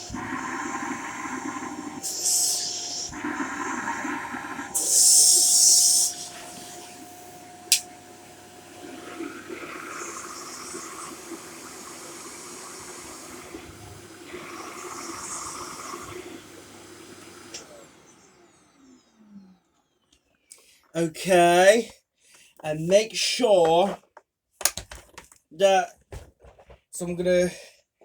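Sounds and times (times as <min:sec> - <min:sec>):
vacuum cleaner running: 0:00.0 - 0:20.0
vacuum motor winding down: 0:00.0 - 0:20.1.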